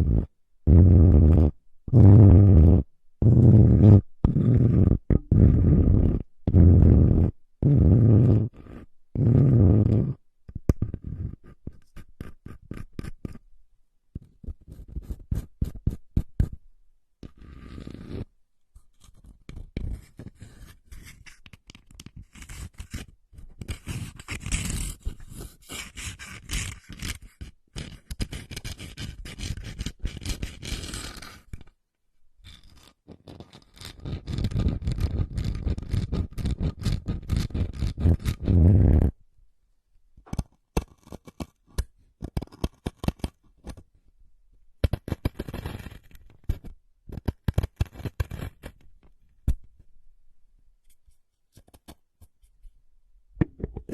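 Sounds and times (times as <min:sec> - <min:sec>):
scratching and scraping: 0:17.2 - 0:31.7, 0:32.4 - 0:39.2, 0:40.2 - 0:43.9, 0:44.8 - 0:49.8, 0:50.8 - 0:52.6.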